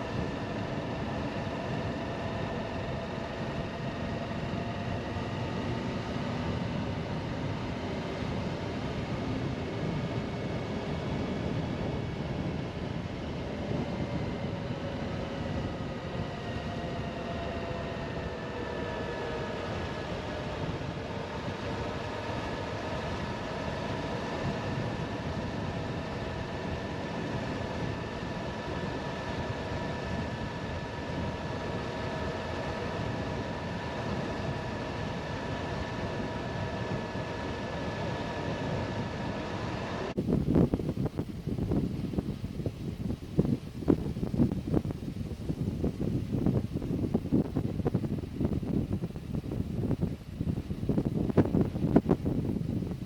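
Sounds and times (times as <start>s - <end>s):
wind and road noise: 0.0s - 53.0s.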